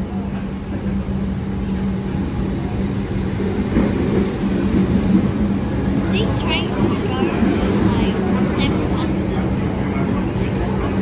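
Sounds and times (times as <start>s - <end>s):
train rumbling and humming: 0.0s - 11.0s.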